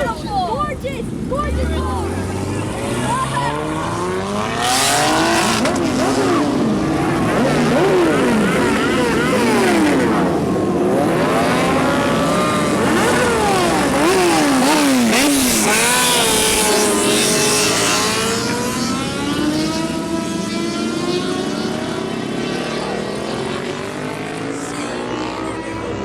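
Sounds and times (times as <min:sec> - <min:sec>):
car engine revving: 0:01.1 - 0:26.0.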